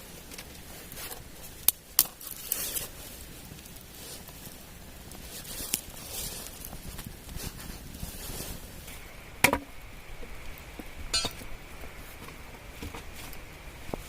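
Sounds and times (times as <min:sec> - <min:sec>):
rustling and scraping handling: 0:00.2 - 0:09.0.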